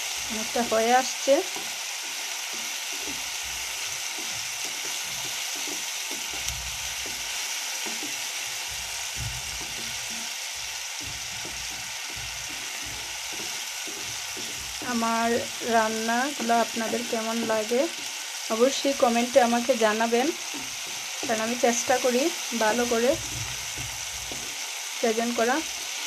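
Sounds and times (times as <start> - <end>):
vegetables sizzling in hot oil: 0.0 - 26.0
spatula scraping a pan: 1.4 - 15.6.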